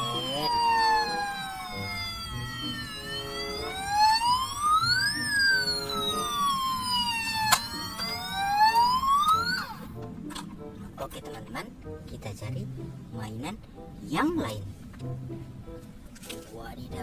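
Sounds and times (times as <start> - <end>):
toy siren wailing: 0.0 - 9.9.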